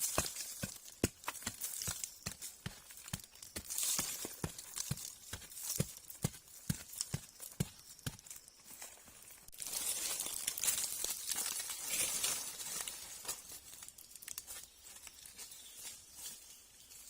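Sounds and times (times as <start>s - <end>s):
rustling crinkling: 6.9s - 15.9s.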